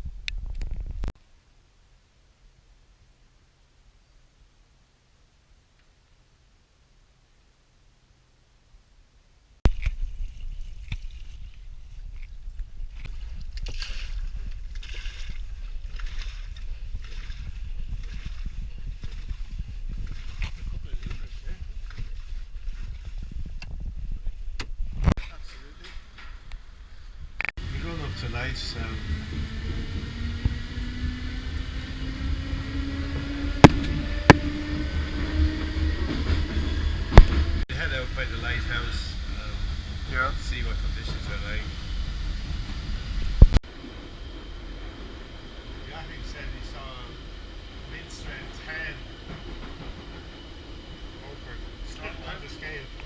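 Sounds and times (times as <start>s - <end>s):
water washing along hull: 9.7s - 23.5s, 36.3s - 53.0s
low rumble: 9.7s - 53.0s.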